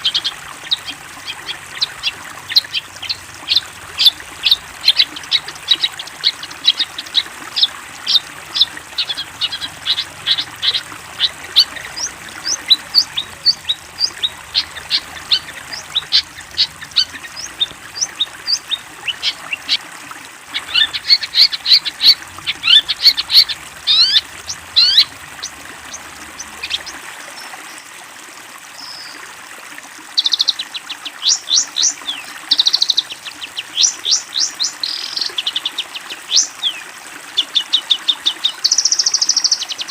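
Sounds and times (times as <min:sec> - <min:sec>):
shrike chirping and chattering: 0:00.0 - 0:19.8, 0:20.5 - 0:26.9.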